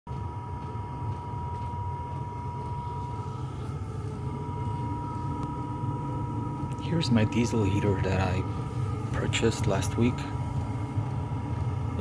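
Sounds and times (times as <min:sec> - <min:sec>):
constant high whine: 0:00.1 - 0:12.0
heater combustion rumble: 0:00.1 - 0:12.0.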